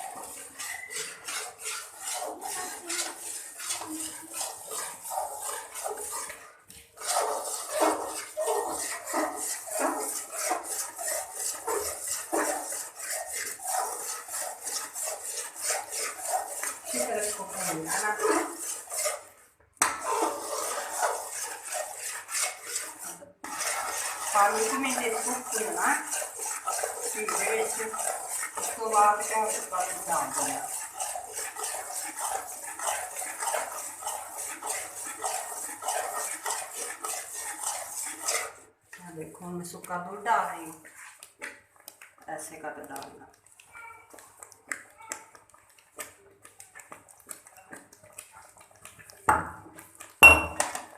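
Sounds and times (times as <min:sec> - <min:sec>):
spoon scraping a pan: 0:00.0 - 0:43.4, 0:44.1 - 0:50.9.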